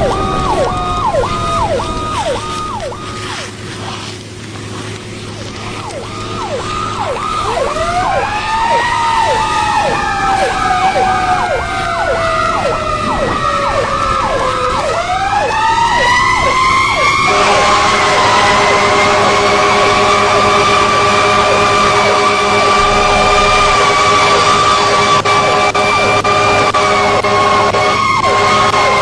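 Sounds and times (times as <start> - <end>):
siren fast yelp: 0.0 - 3.6, 5.8 - 29.0
siren slow wail: 0.0 - 29.0
steady horn-like tone: 16.0 - 29.0.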